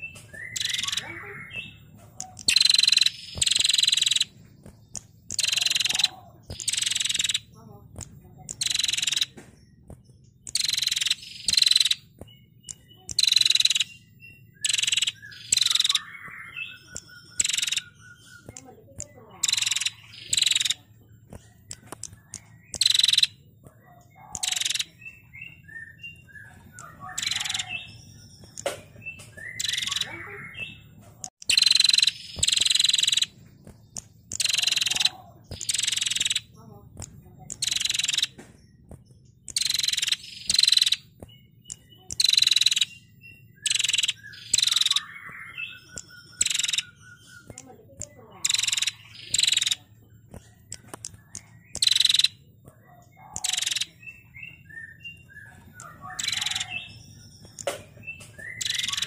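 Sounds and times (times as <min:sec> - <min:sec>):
bird rattling trills: 0:00.0 - 0:59.0.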